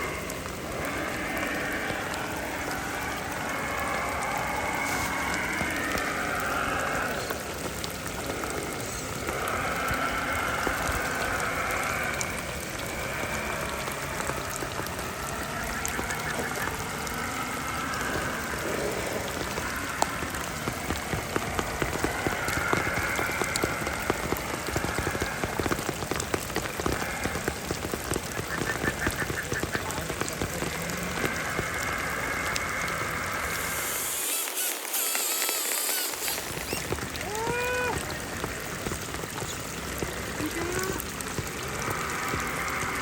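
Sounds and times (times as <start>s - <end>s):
sharp raindrop hits: 0.0s - 43.0s
steady rainfall: 0.0s - 43.0s.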